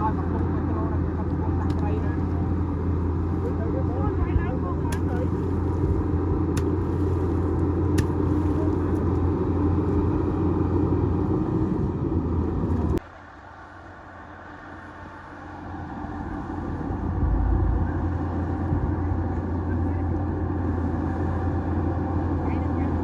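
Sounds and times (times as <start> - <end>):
bulldozer diesel engine running: 14.7 - 23.0.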